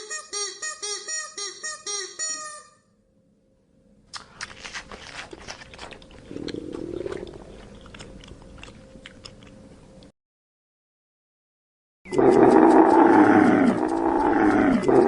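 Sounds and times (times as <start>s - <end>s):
animal chewing with crunching clicks: 4.1s - 10.1s, 12.1s - 15.0s.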